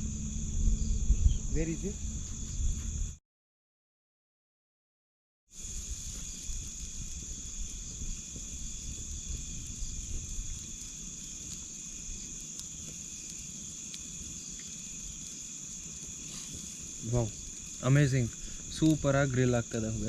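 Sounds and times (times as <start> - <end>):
crickets and insects trilling: 0.0 - 3.2, 5.5 - 20.0
low uneven rumble: 0.0 - 3.2.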